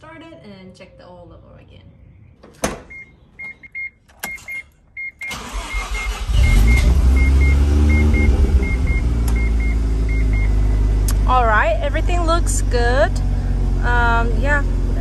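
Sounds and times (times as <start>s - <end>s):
car engine starting and running: 4.1s - 15.0s.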